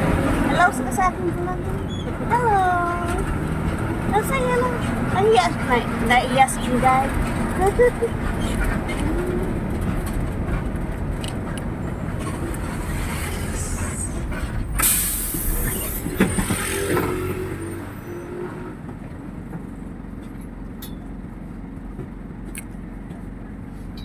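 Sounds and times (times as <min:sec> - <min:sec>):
bus engine and road noise: 0:00.0 - 0:24.0
short sharp hiss: 0:14.8 - 0:16.1.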